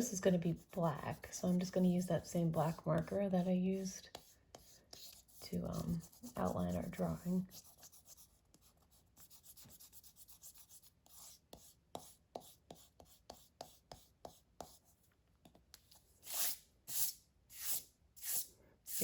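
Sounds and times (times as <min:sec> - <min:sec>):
marker rubbing across paper: 0:04.0 - 0:15.0, 0:15.8 - 0:19.0.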